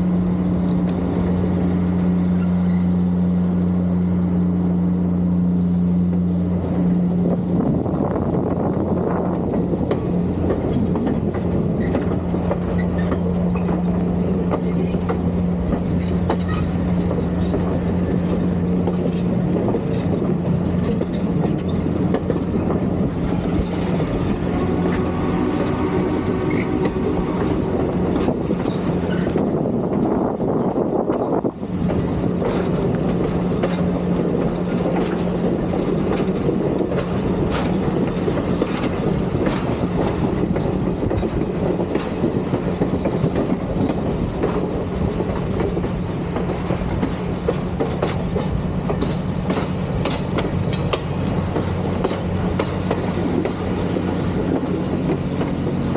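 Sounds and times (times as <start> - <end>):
thin high squeal: 2.3 - 3.0, 24.3 - 26.9
train wheels clattering: 6.0 - 55.9.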